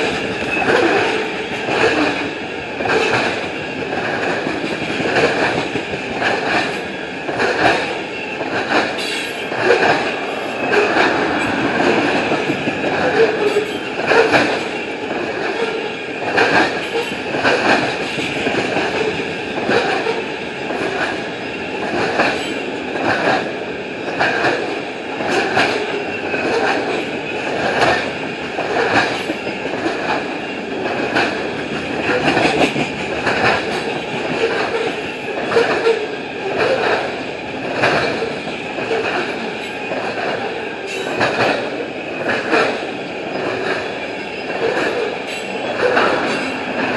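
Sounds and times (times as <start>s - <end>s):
train cars rolling past: 0.0s - 46.9s
wheels clicking over rail joints: 0.0s - 46.9s.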